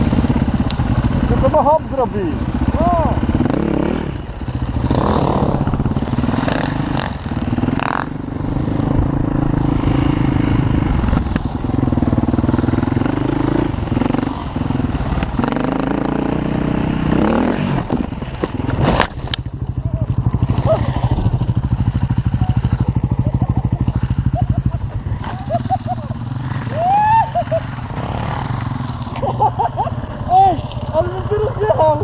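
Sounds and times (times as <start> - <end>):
dirt bike engine revving: 0.0 - 31.6.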